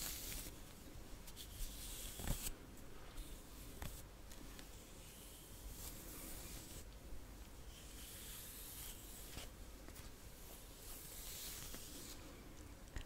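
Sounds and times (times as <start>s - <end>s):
rubbing strokes on microphone: 7.6s - 12.4s.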